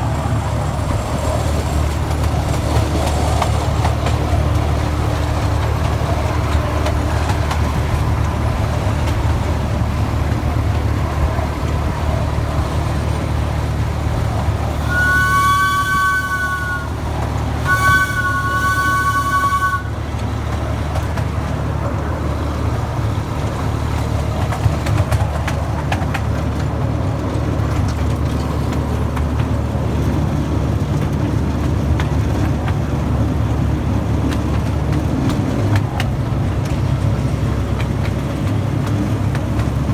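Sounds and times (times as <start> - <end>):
locomotive rumbling: 0.0 - 39.9
two-note train horn: 14.6 - 20.3.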